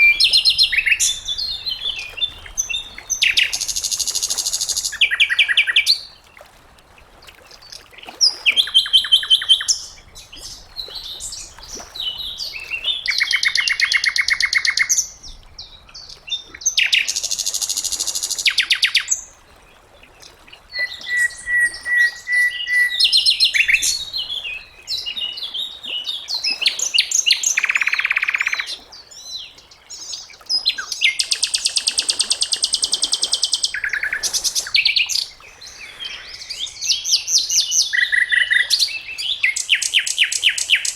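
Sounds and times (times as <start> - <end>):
thin steady bird whistle: 0.0 - 6.0, 20.7 - 24.6.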